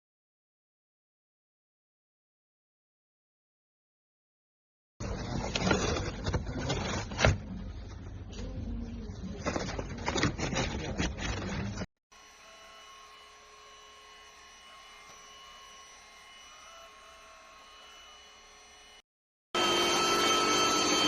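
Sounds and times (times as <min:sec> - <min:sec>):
stick vacuum cleaner running: 0:12.2 - 0:19.0, 0:19.6 - 0:21.0.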